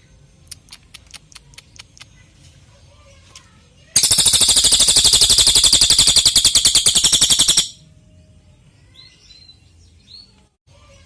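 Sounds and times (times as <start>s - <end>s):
songbird fast trill: 4.0s - 7.8s.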